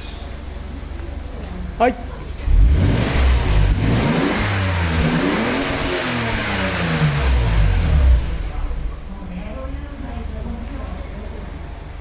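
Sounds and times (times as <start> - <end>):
car engine revving: 2.3 - 10.3.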